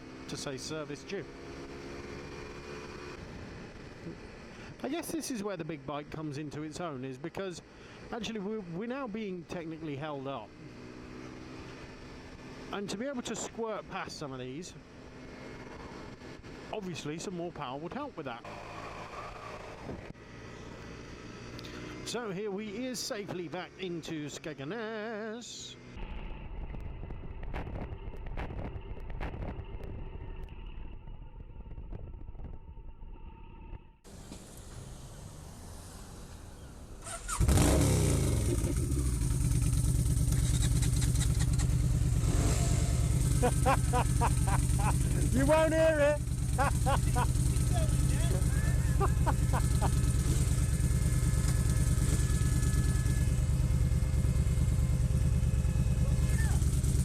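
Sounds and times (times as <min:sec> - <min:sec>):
motorcycle engine running: 0:37.2 - 0:57.0.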